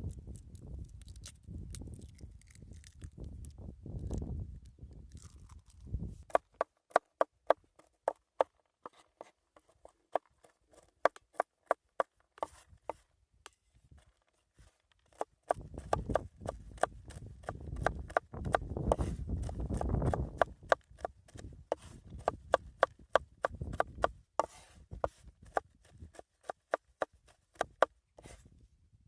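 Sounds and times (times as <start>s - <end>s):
knife chopping on wooden board: 6.3s - 9.0s, 15.1s - 28.4s.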